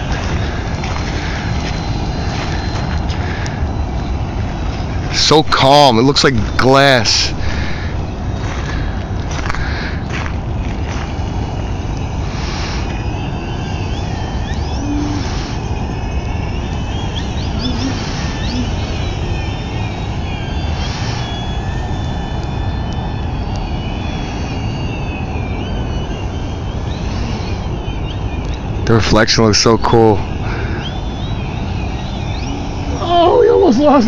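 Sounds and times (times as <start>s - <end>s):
steady low rumble: 0.0s - 34.0s
model plane motor whining: 7.8s - 28.8s, 30.2s - 34.0s.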